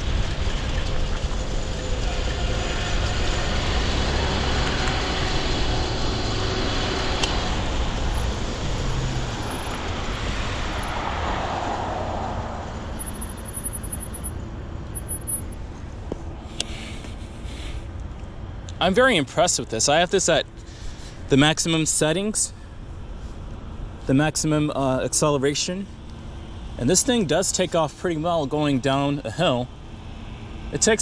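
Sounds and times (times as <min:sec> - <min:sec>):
wind rushing over microphone: 0:00.0 - 0:14.0
bike tyre and road noise: 0:00.0 - 0:24.2.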